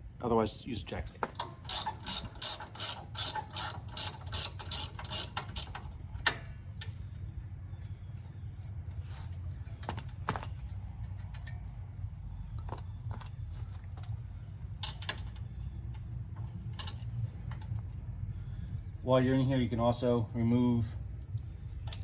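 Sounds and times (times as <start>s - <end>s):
ratchet clicking: 1.3s - 7.1s, 14.8s - 18.0s.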